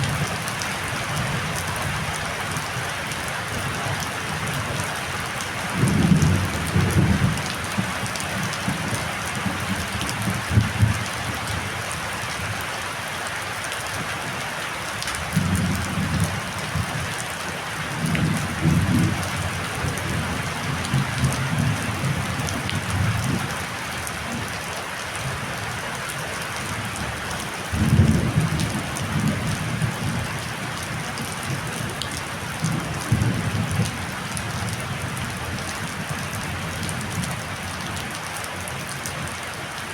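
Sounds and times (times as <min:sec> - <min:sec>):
heavy rain hissing: 0:00.0 - 0:13.3.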